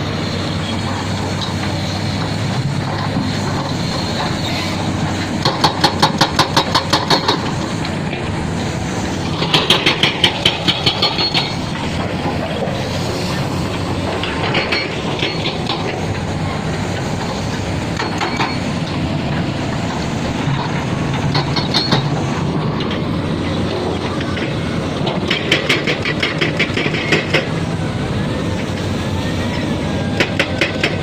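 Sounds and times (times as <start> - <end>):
construction machinery engine drone: 0.0 - 31.0
metallic clanks and squeals: 0.5 - 7.6, 9.4 - 13.5, 14.1 - 17.1, 17.9 - 19.0, 21.0 - 27.6
rattle of clanks: 5.2 - 8.3, 9.2 - 12.7, 14.0 - 27.6.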